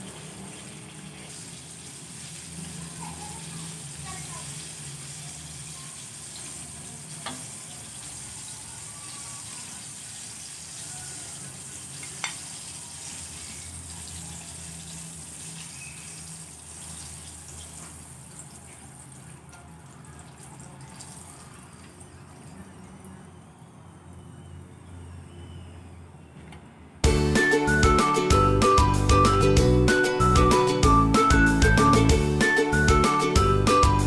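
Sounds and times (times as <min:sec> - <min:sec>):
food sizzling in hot oil: 0:00.0 - 0:19.2.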